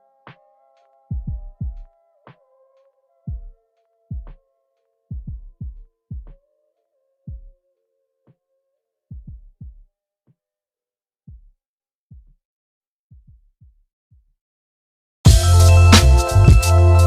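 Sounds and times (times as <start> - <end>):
deep electronic thumps: 15.3 - 16.8
music with heavy drums: 15.3 - 17.0.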